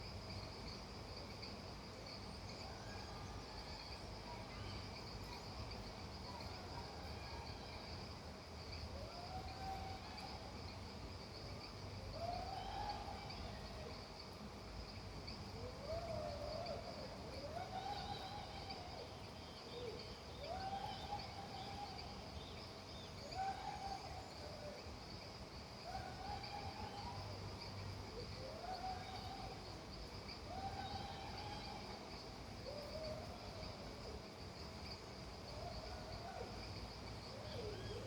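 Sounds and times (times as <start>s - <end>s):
faint hiss: 0.0s - 38.0s.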